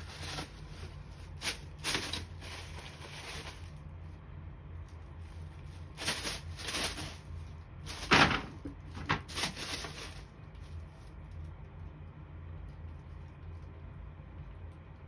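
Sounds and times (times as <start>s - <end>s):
paper rustling and crinkling: 0.0s - 3.9s, 4.9s - 11.5s.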